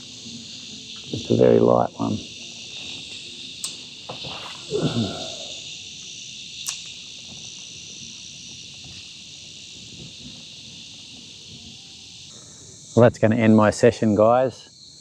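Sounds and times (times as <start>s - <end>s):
cicadas buzzing: 0.0s - 15.0s
sharp click: 3.6s - 3.9s, 6.6s - 7.0s.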